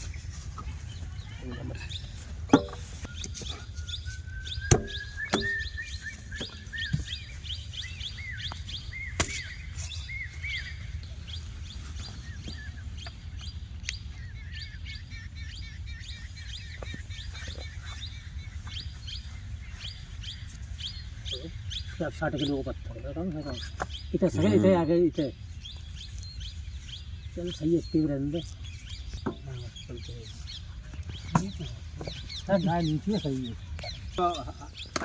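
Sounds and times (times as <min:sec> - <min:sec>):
small birds chirping: 0:00.0 - 0:35.0
sharp knocks: 0:04.6 - 0:05.6.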